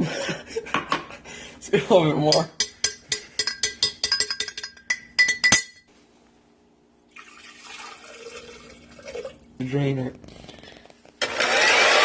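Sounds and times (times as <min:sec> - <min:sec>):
spoon tapping blender jar: 0:02.3 - 0:05.7.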